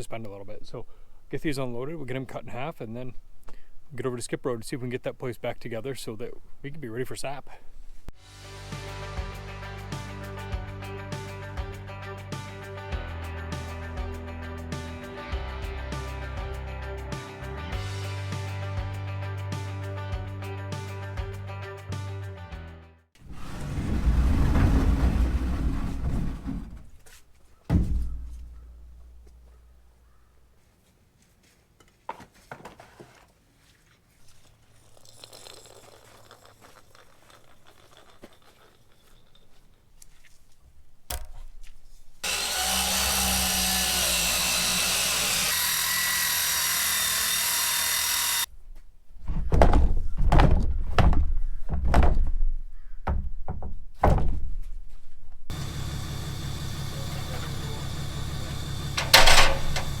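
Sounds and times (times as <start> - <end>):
power saw cutting boards: 42.2 - 48.5, 55.5 - 60.0
low engine hum: 55.5 - 60.0.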